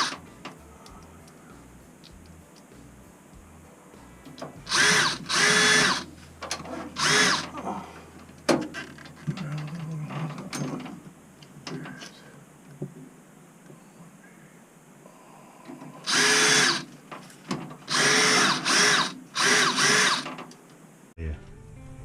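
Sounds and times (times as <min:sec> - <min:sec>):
power drill driving screws: 0:00.0 - 0:00.2, 0:04.7 - 0:06.1, 0:06.9 - 0:07.5, 0:16.0 - 0:16.9, 0:17.9 - 0:20.4.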